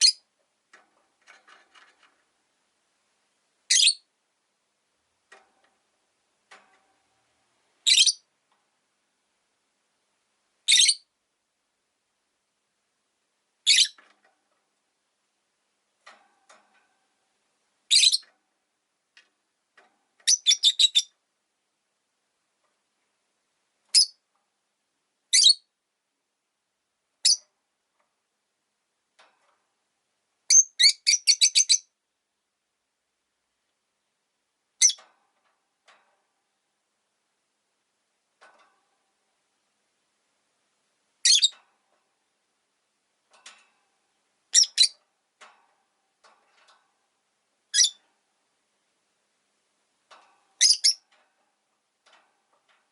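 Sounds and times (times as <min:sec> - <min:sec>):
lovebirds chirping: 0:03.7 - 0:04.1, 0:07.8 - 0:08.2, 0:13.6 - 0:14.0, 0:17.9 - 0:18.2, 0:20.2 - 0:21.1, 0:30.5 - 0:31.9, 0:41.2 - 0:41.6, 0:44.5 - 0:45.0, 0:47.7 - 0:48.0, 0:50.6 - 0:51.0.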